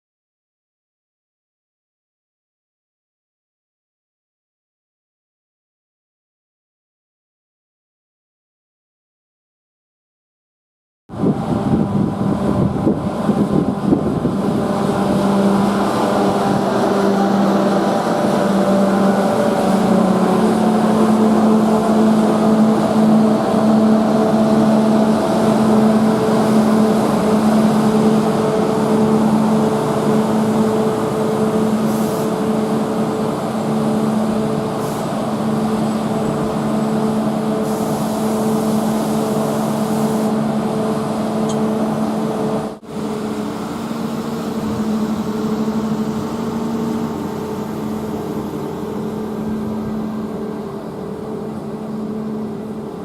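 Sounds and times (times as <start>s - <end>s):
train humming: 11.1s - 53.0s.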